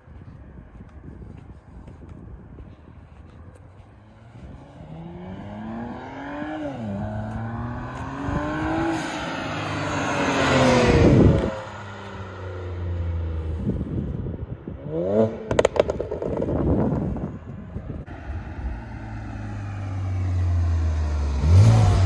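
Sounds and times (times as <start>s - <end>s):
car accelerating past: 4.0s - 13.5s, 18.1s - 22.0s.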